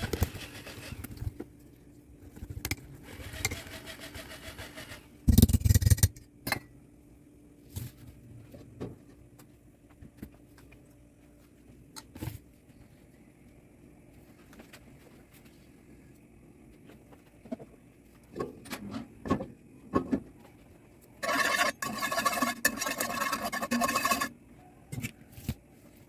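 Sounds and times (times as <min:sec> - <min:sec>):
kitchen utensils clattering: 0:21.2 - 0:24.3.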